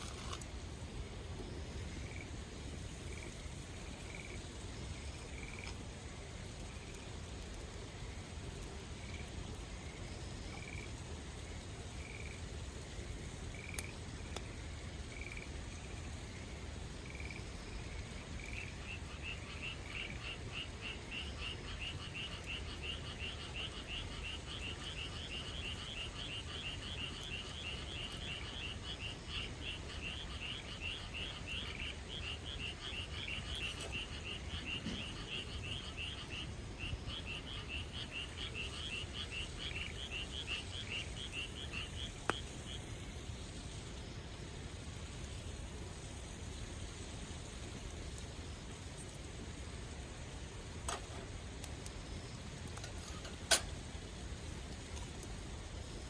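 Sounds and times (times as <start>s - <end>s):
frogs calling: 17.0s - 44.1s.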